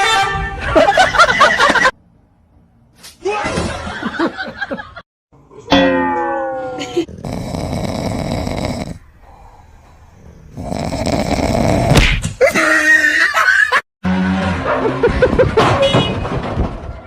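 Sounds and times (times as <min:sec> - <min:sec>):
person snoring: 0:07.0 - 0:12.7.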